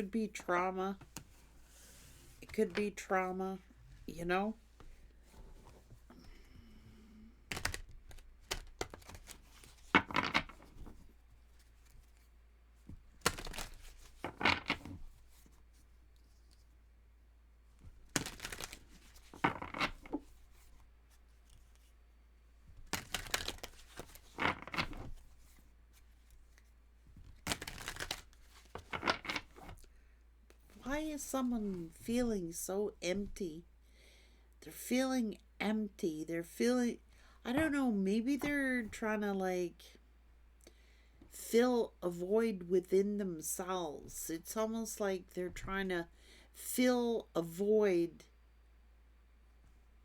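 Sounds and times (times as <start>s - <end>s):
cards being shuffled: 7.5s - 12.3s, 12.9s - 16.8s, 17.8s - 22.0s, 22.7s - 29.9s.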